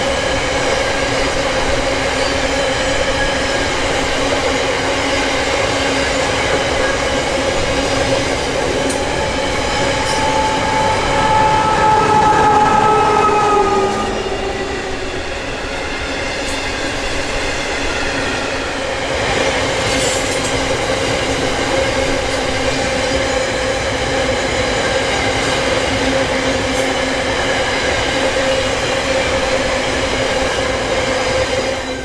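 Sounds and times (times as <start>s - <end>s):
ringing wheel squeal: 9.4s - 15.9s.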